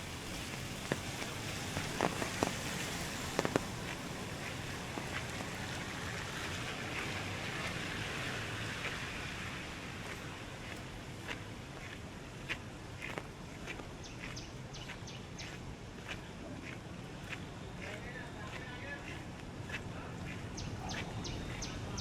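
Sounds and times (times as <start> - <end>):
rain hiss: 0.0 - 13.9
traffic: 0.0 - 22.0.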